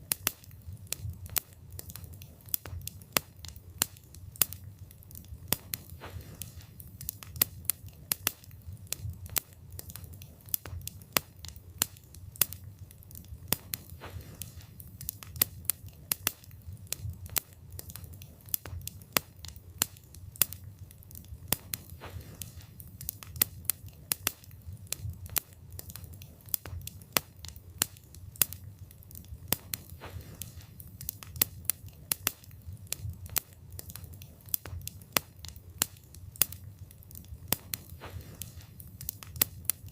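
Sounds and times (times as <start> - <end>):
logs crackling and popping: 0.0 - 39.9
low rumble of flame: 0.0 - 39.9.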